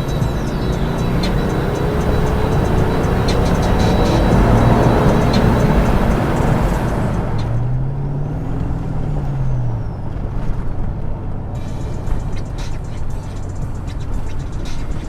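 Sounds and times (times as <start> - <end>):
motor vehicle engine rumbling: 0.0 - 15.0.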